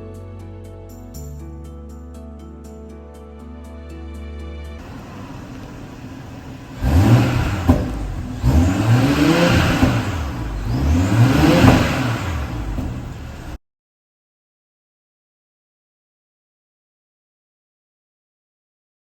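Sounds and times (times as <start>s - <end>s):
car engine revving: 4.8s - 13.6s.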